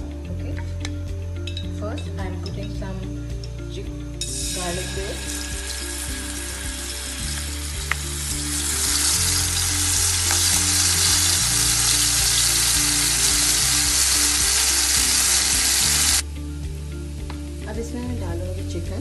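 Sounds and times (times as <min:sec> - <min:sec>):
faint background music: 0:00.0 - 0:19.0
garlic sizzling in hot oil: 0:04.2 - 0:16.2.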